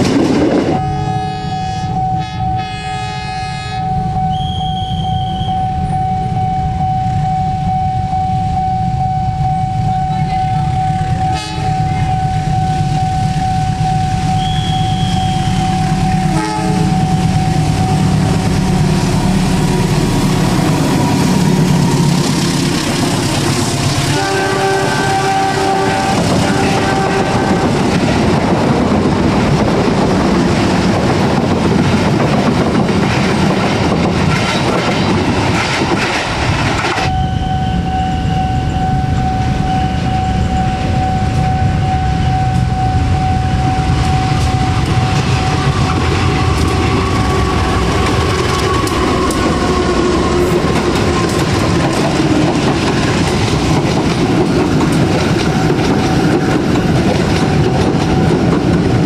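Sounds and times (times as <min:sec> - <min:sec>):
train coaches rolling on rails: 0:00.0 - 0:07.8, 0:08.8 - 0:59.0
diesel locomotive passing: 0:00.0 - 0:59.0
steady high tone: 0:00.7 - 0:28.6, 0:37.0 - 0:56.9
wheel clatter over track joints: 0:27.6 - 0:37.1, 0:45.1 - 0:59.0.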